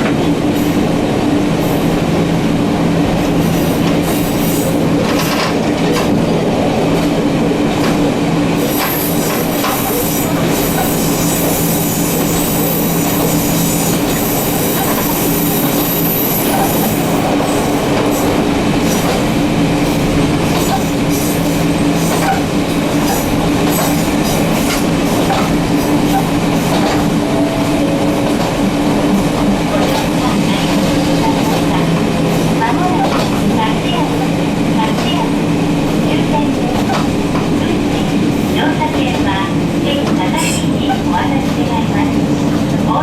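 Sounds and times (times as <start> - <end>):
wheels rumbling on rails: 0.0 - 43.0.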